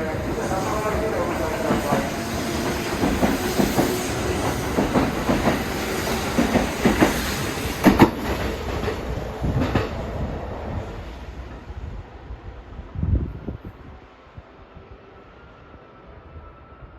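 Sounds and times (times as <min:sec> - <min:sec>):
train wheels clattering over rail joints: 0:01.4 - 0:10.0.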